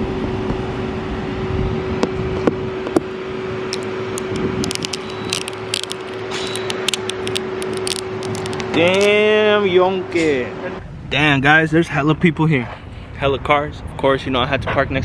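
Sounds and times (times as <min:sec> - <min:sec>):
car driving slowly: 0:02.8 - 0:09.1
small sharp clicks and ticks: 0:03.7 - 0:09.1.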